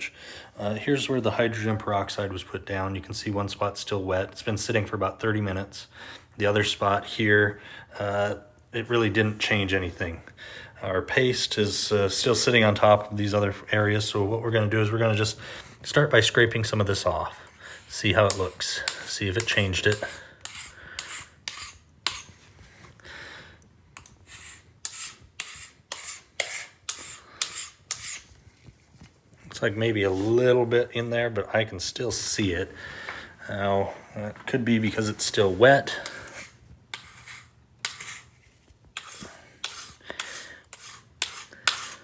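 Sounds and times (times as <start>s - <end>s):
hand scraper scraping wood floor: 16.9s - 22.4s, 24.2s - 28.3s, 35.3s - 38.4s, 39.0s - 42.0s.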